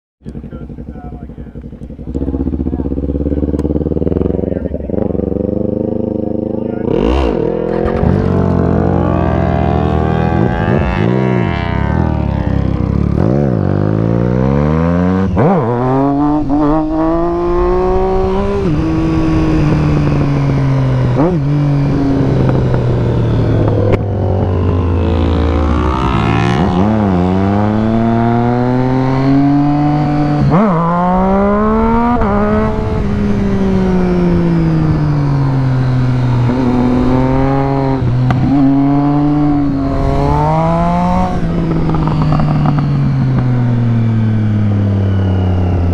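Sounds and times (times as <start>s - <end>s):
motorcycle engine shifting gears: 0.2s - 45.9s.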